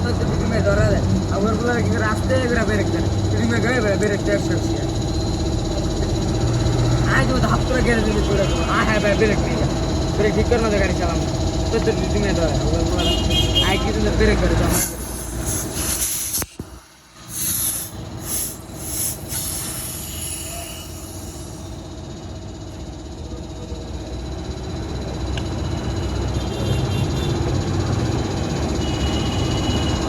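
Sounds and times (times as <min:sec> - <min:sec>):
hissing air bursts: 0:14.6 - 0:21.8.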